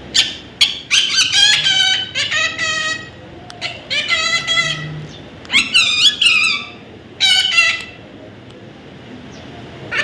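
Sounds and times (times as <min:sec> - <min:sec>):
baby parrot squeaky calls: 0:00.1 - 0:04.9, 0:05.5 - 0:08.0.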